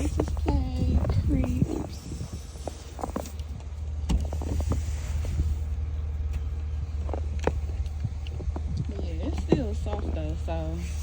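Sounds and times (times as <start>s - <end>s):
low rumble: 0.0s - 11.0s
snow brushing hiss: 4.2s - 5.8s.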